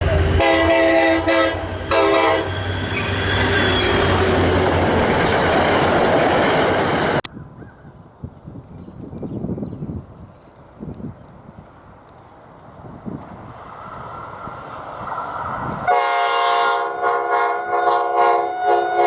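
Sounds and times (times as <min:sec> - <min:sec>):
passing train rushing: 0:00.0 - 0:07.3, 0:11.6 - 0:19.0
train horn blasts: 0:00.1 - 0:03.9, 0:15.9 - 0:19.0.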